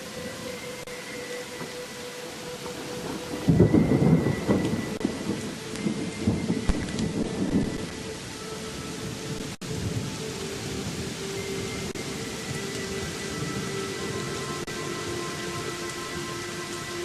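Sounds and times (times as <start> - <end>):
steady rain: 0.0 - 17.0
thunder rumbling: 1.3 - 17.0.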